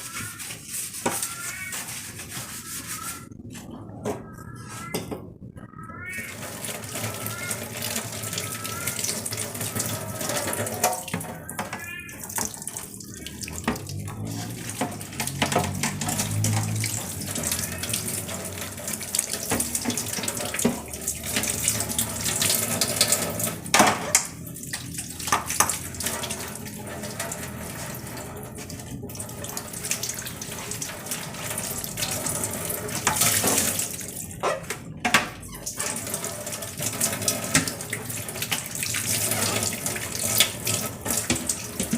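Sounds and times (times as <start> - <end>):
tap water running into sink: 6.3 - 41.9
knocks and clatter: 14.8 - 16.8.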